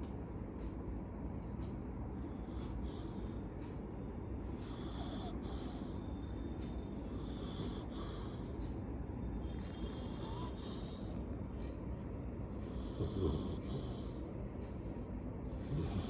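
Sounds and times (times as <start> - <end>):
dog snoring and snorting: 4.6 - 6.0, 7.2 - 8.5, 9.4 - 11.1, 12.7 - 14.2, 15.5 - 16.0.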